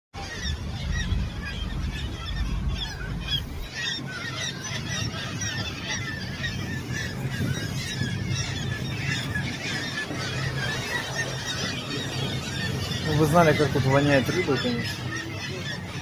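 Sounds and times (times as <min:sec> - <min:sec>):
low rumble: 0:00.2 - 0:13.0
seabirds calling: 0:00.2 - 0:16.0.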